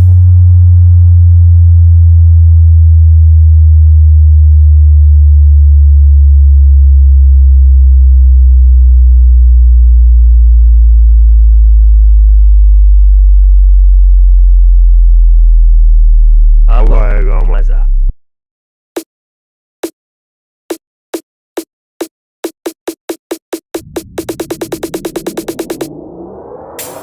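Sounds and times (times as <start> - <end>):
deep tone sliding down in pitch: 23.8 - 27.0.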